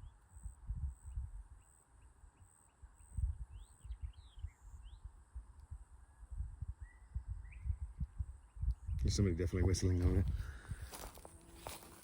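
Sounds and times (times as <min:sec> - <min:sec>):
footsteps on woodland trail: 0:09.8 - 0:12.0.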